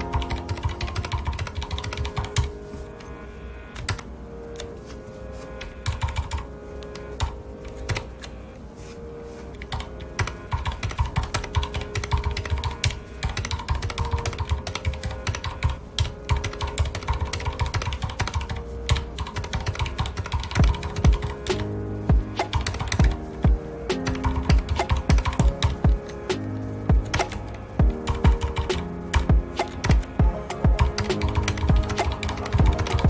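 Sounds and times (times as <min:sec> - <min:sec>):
typing on mechanical keyboard: 0:00.0 - 0:02.5, 0:05.8 - 0:06.4, 0:09.7 - 0:21.6, 0:22.4 - 0:23.2, 0:24.0 - 0:25.8, 0:28.1 - 0:33.0
soft background music: 0:00.0 - 0:33.0.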